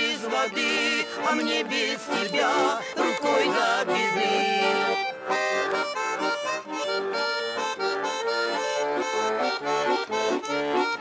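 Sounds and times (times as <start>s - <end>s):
accordion playing chords and melody: 0.0s - 11.0s.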